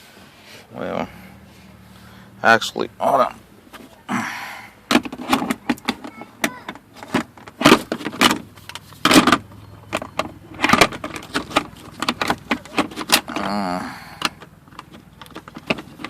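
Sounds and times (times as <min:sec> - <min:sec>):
handling clicks and rattles: 0:04.9 - 0:16.0
scraping rustles: 0:05.0 - 0:16.0.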